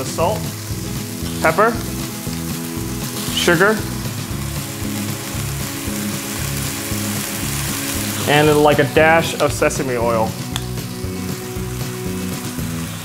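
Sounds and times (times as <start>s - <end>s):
oysters sizzling in oil: 0.0s - 13.0s
pepper mill clicking: 10.4s - 10.8s.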